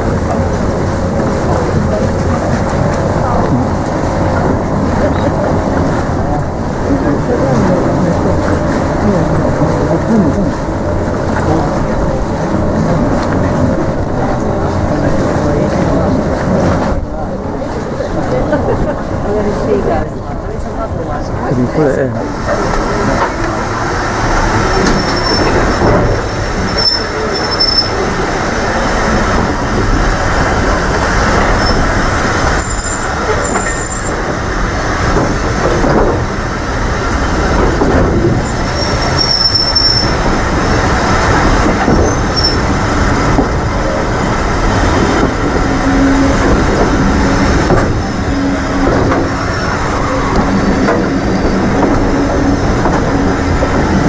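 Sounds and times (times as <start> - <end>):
train wheels rumbling on track: 0.0 - 54.0
high wheel squeals: 24.3 - 29.5, 31.3 - 34.3, 38.4 - 41.2, 41.9 - 43.0, 44.2 - 54.0.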